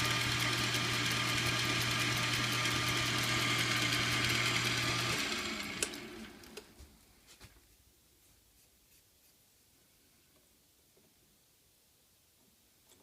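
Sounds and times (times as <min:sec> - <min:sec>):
lathe motor hum: 0:00.0 - 0:06.6.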